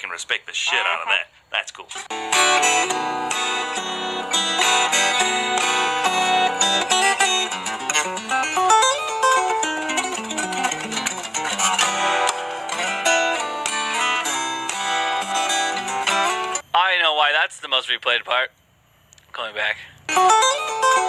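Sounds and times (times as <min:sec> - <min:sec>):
fingerstyle guitar playing: 0:02.0 - 0:16.6, 0:20.1 - 0:21.0.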